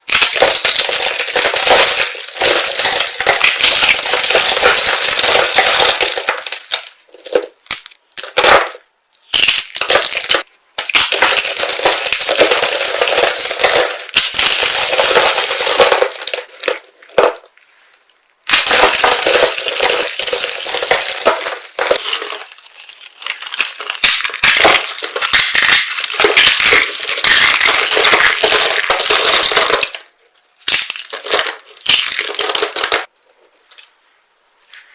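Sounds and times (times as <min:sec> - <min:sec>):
soap crunching crackle: 0:18.5 - 0:30.0.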